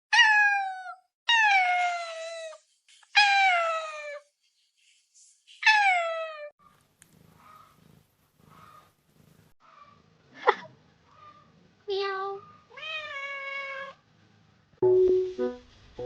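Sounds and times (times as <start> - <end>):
cat meowing: 0.1 - 2.6, 12.7 - 14.0
music with plucked notes: 14.8 - 16.0.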